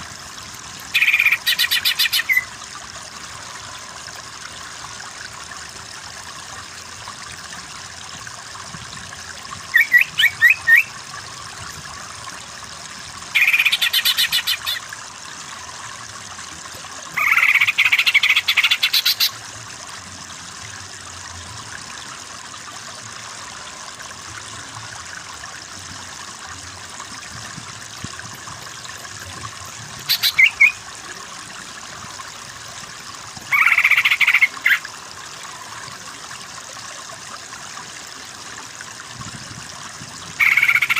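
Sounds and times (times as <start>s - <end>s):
steady water-like rush: 0.0s - 40.9s
leafbird singing: 30.1s - 30.8s.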